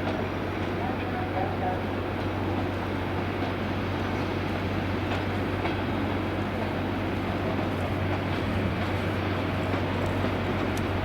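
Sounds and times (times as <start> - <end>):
train rumble: 0.0 - 11.0
faint clicks: 10.0 - 10.9.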